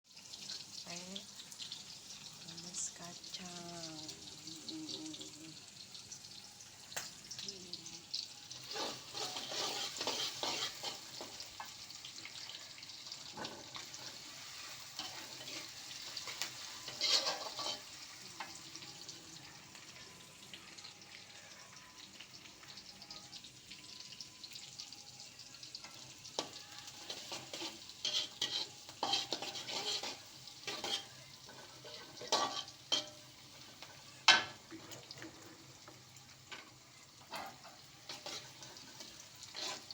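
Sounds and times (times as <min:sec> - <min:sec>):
food sizzling in hot oil: 0:00.0 - 0:39.9
spatula stirring and scraping: 0:08.5 - 0:11.7, 0:13.3 - 0:18.1, 0:25.9 - 0:35.9, 0:36.5 - 0:39.9.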